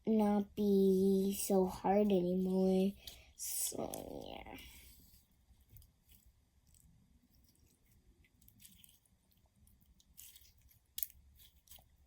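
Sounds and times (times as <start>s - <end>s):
sticky slime squishing by hand: 5.4s - 12.0s.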